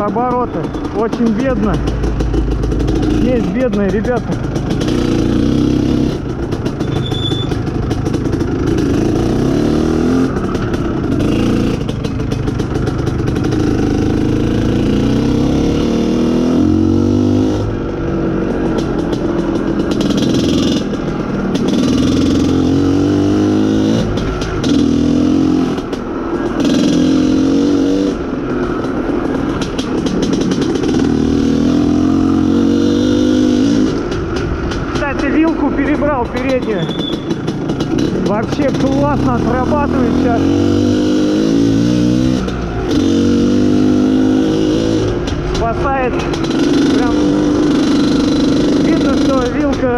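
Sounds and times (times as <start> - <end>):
two-stroke motorcycle engine revving: 0.0 - 49.9.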